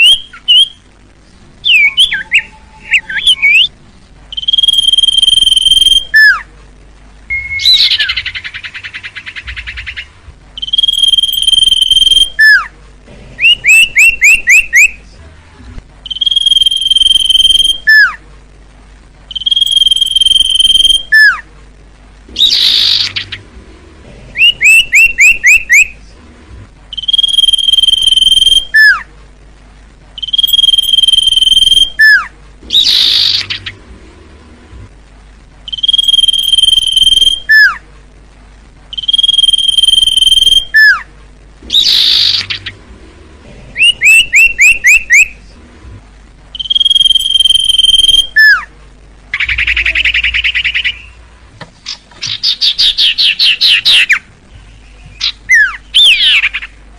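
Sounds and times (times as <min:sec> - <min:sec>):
bird rising chirps: 0:00.0 - 0:00.8, 0:01.6 - 0:06.5, 0:07.3 - 0:12.7, 0:13.4 - 0:15.0, 0:16.0 - 0:18.2, 0:19.3 - 0:21.4, 0:24.4 - 0:26.0, 0:26.9 - 0:29.0, 0:30.2 - 0:33.9, 0:35.6 - 0:37.8, 0:38.9 - 0:41.0, 0:41.6 - 0:42.9, 0:43.8 - 0:45.4, 0:46.5 - 0:48.7, 0:49.3 - 0:51.2, 0:51.9 - 0:56.8
bird singing high whistles: 0:00.0 - 0:00.8, 0:01.6 - 0:03.7, 0:04.3 - 0:06.4, 0:07.3 - 0:12.7, 0:13.4 - 0:15.0, 0:16.0 - 0:18.2, 0:19.3 - 0:21.4, 0:22.4 - 0:23.4, 0:24.4 - 0:25.9, 0:26.9 - 0:29.0, 0:30.2 - 0:33.7, 0:35.7 - 0:37.8, 0:38.9 - 0:41.0, 0:41.7 - 0:42.7, 0:43.8 - 0:45.3, 0:46.6 - 0:48.7, 0:52.3 - 0:54.2, 0:55.1 - 0:56.7
harsh buzzy bird call: 0:00.0 - 0:00.9, 0:22.4 - 0:23.5, 0:24.4 - 0:26.0, 0:30.2 - 0:33.8, 0:41.7 - 0:42.8, 0:43.8 - 0:45.4, 0:49.3 - 0:51.2, 0:51.8 - 0:56.8.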